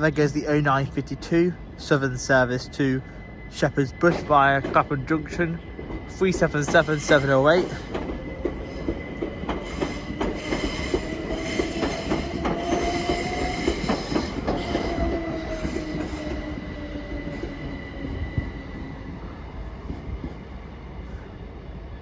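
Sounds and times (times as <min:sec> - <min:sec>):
electric train motors whining: 0:01.8 - 0:20.2
wheels clicking over rail joints: 0:04.1 - 0:18.1.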